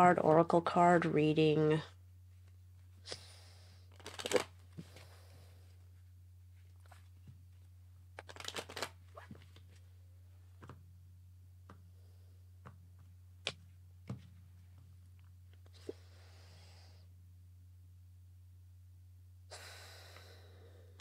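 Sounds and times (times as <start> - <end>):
faint low hum: 0.0 - 21.0
cards shuffling: 3.9 - 5.1, 8.2 - 9.8.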